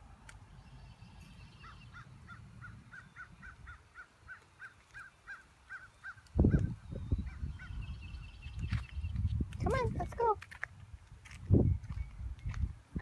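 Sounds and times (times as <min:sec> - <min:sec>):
bird calling repeated notes: 0:01.2 - 0:09.0.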